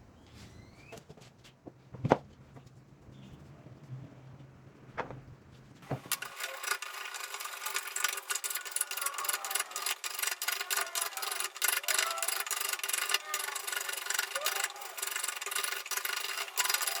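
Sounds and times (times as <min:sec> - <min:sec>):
rapid clicking and scraping: 0:05.0 - 0:17.0.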